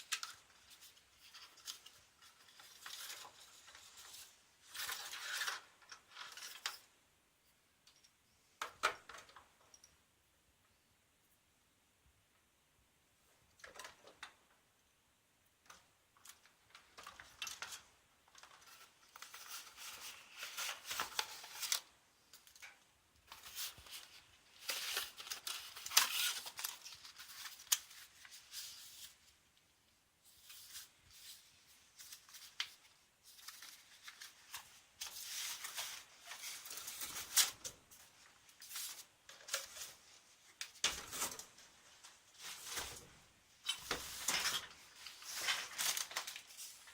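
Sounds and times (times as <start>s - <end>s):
cardboard and plastic rustling: 16.2s - 29.3s, 30.3s - 46.9s.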